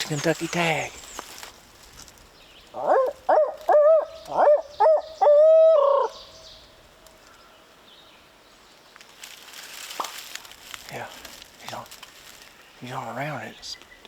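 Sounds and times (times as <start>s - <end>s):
owl hooting: 2.7s - 6.7s.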